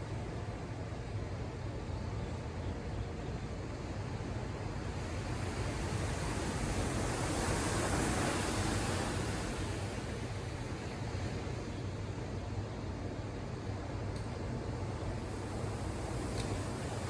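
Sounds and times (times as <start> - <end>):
low rumble of the sea: 1.4 - 17.0
wave washing ashore: 5.4 - 10.2.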